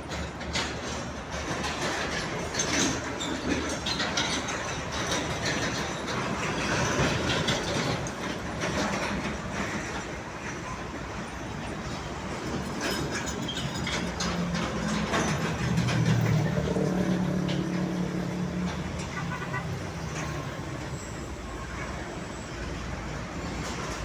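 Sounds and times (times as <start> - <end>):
truck diesel engine passing: 13.9 - 24.0.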